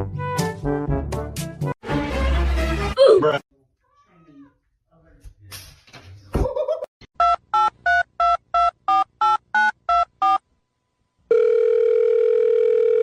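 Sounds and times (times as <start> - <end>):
telephone ringing tone: 11.3 - 13.0.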